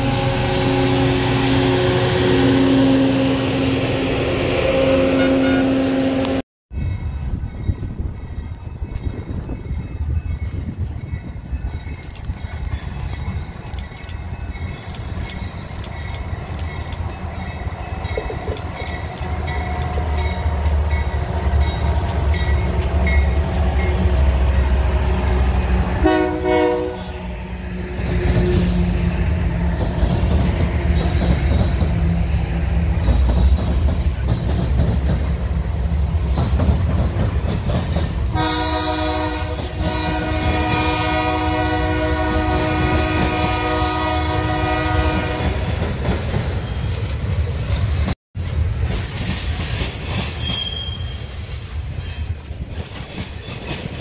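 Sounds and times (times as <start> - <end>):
multi-note train horn: 0.0 - 6.4, 24.2 - 28.9, 38.3 - 45.6
train horn blast: 0.0 - 6.4, 23.6 - 29.0, 38.3 - 45.7
diesel locomotives rumbling: 0.0 - 54.0.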